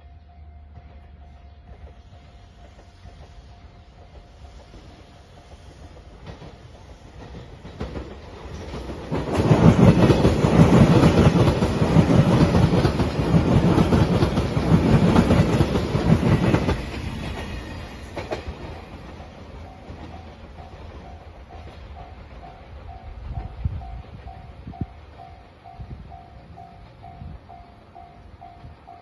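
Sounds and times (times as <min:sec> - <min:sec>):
train wheels clattering over joints: 0:01.7 - 0:23.5.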